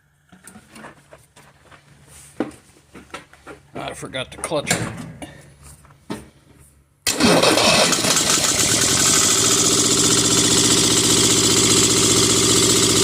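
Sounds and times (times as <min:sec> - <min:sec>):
diesel tractor engine starting and idling: 0:07.0 - 0:13.0.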